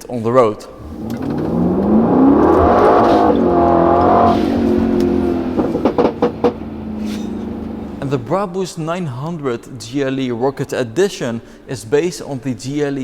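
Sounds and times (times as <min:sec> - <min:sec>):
car engine revving: 0:00.6 - 0:08.4
exhaust pops: 0:00.6 - 0:08.4.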